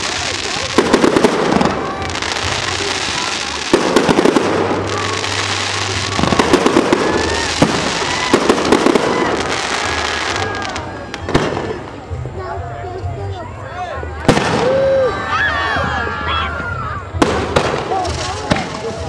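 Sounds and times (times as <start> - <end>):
rapid firework bangs: 0.0 - 12.0, 14.3 - 14.7, 17.2 - 19.0
crackling hiss: 0.0 - 12.4, 17.2 - 19.0
fireworks bursting: 0.0 - 12.4, 14.2 - 15.1, 17.1 - 19.0.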